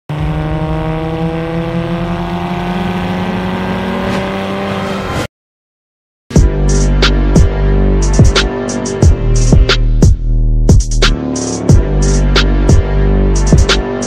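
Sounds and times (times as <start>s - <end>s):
music with sharp drum hits: 6.3s - 14.0s.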